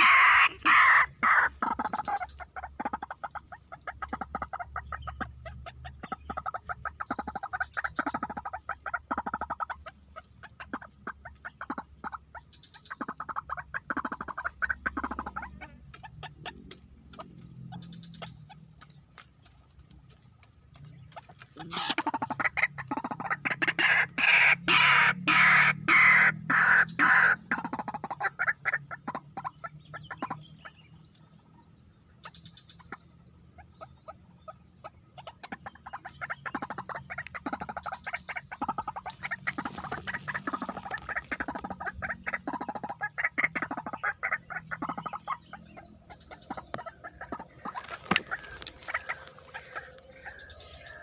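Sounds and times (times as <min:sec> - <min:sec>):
waterhen harsh croaking calls: 0:00.0 - 0:18.9, 0:21.1 - 0:30.8, 0:32.2 - 0:51.0.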